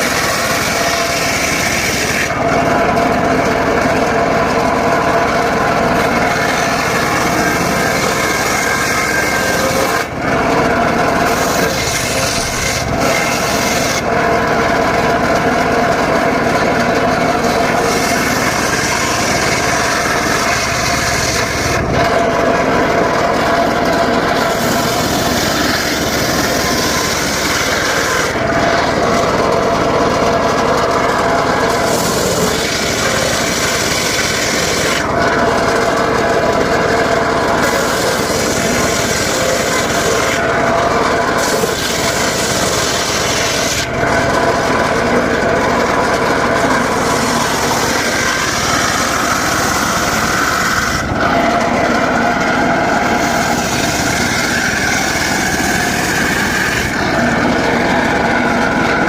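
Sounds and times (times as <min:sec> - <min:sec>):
circular saw cutting wood: 0:00.0 - 0:59.0
motor drone: 0:00.0 - 0:59.0.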